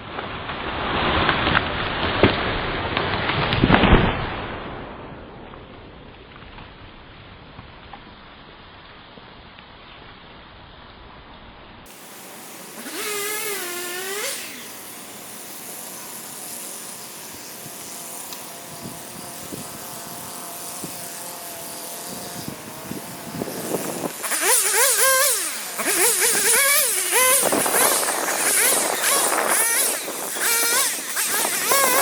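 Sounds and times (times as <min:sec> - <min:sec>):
chainsaw revving: 0:11.9 - 0:32.0.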